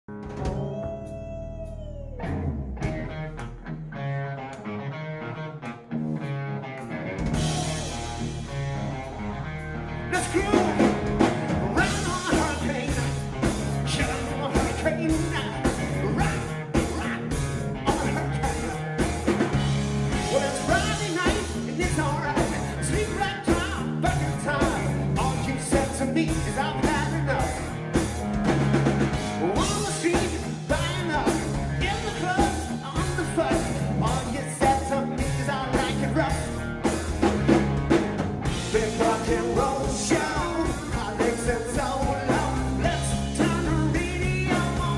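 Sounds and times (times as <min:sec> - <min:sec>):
drum kit beat: 0:00.1 - 0:03.7, 0:07.2 - 0:09.2, 0:10.1 - 0:44.9
bass guitar: 0:00.1 - 0:44.9
electric guitar: 0:00.1 - 0:44.9
person singing: 0:00.4 - 0:02.4, 0:10.1 - 0:11.0, 0:11.6 - 0:13.2, 0:13.8 - 0:19.0, 0:20.1 - 0:27.7, 0:29.4 - 0:36.6, 0:38.6 - 0:44.9.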